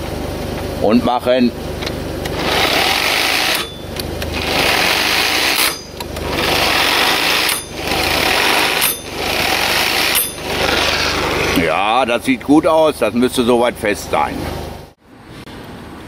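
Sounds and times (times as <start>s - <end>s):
impact wrench hammering: 2.3s - 11.2s.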